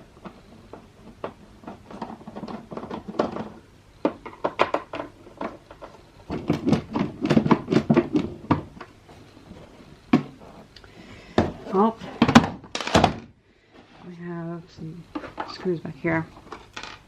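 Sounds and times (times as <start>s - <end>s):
clicks taps and knocks: 0.2s - 9.0s.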